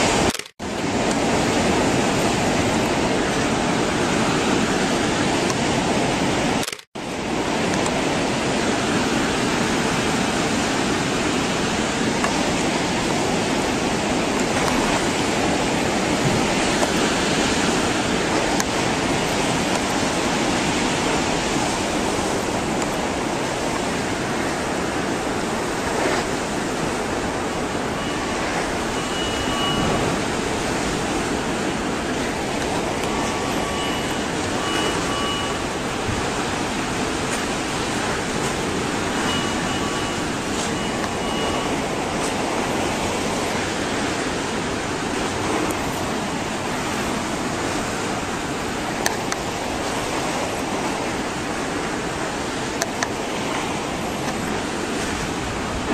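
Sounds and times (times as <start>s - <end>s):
rushing churning water: 0.0s - 55.9s
faint beeping tones: 27.2s - 43.6s.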